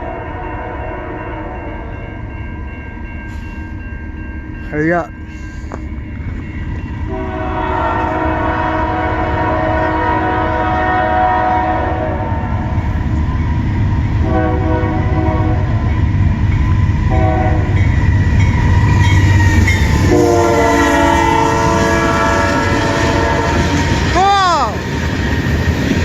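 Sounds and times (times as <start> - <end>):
train horn blasts: 0.0 - 1.7, 7.1 - 12.8, 14.2 - 16.0, 17.1 - 24.1
heavy train rumble: 0.0 - 26.0.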